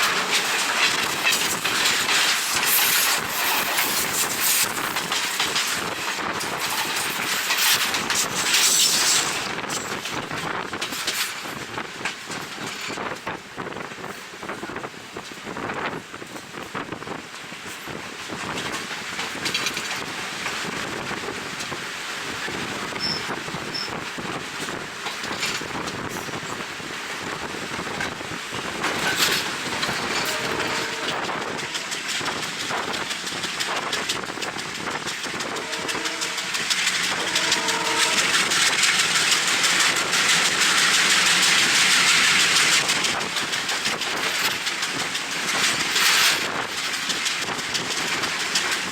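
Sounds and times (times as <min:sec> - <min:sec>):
passenger train running on track: 0:00.0 - 0:48.9
wind on microphone: 0:09.2 - 0:41.0.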